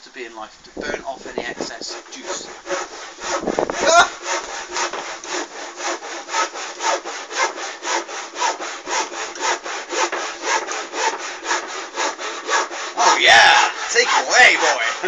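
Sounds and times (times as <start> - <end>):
rasping exhaust puffs: 0.6 - 5.7.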